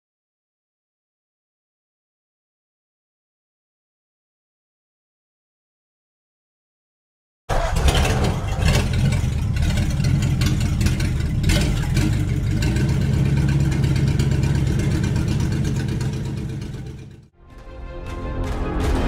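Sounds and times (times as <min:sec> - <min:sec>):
car engine rumble: 0:07.5 - 0:17.3.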